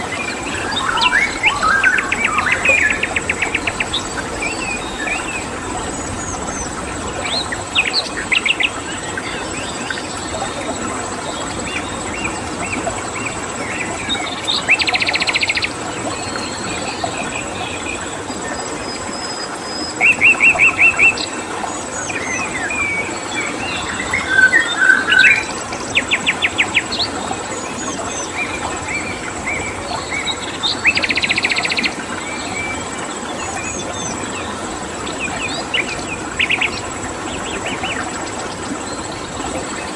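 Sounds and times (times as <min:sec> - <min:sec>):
birds chirping and calling: 0:00.0 - 0:09.3, 0:27.5 - 0:28.9, 0:33.4 - 0:34.3
crickets droning: 0:00.0 - 0:39.9
stream water running: 0:00.0 - 0:39.9.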